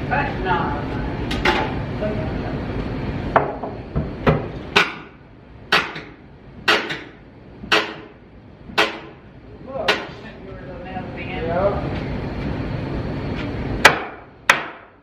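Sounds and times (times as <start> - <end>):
hammer blows on wooden boards: 5.7 - 8.2, 8.8 - 9.2, 13.8 - 15.0.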